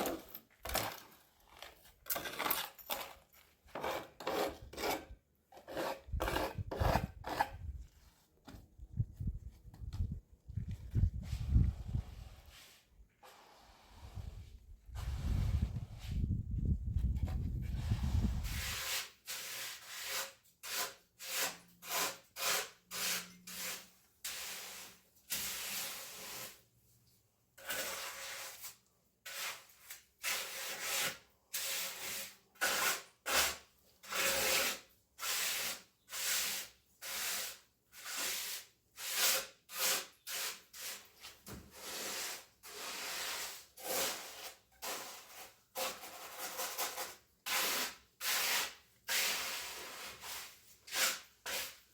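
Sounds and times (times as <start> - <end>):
hand tool scraping a surface: 0.0 - 7.8, 11.2 - 16.3, 17.0 - 26.6, 27.6 - 51.9.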